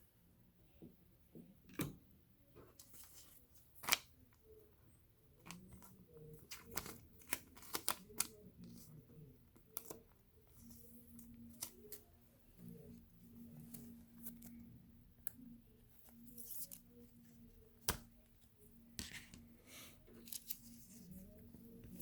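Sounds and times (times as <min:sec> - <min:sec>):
cards and packaging clicking: 0:06.5 - 0:08.8.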